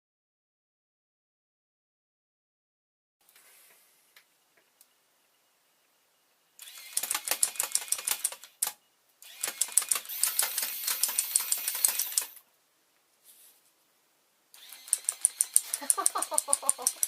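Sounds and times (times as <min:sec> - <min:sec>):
toy gun firing rapid clicks: 0:06.6 - 0:12.4, 0:14.6 - 0:17.0.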